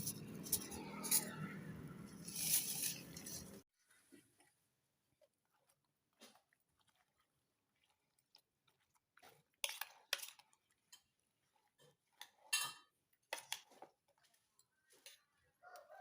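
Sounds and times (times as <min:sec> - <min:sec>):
person chewing: 0:05.2 - 0:12.4.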